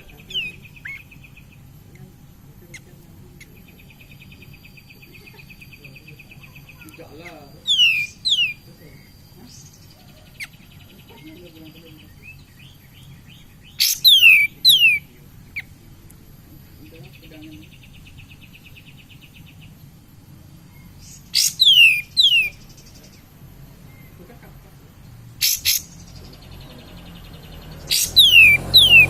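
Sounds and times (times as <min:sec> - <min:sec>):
bird whistling descending notes: 0:27.9 - 0:29.0.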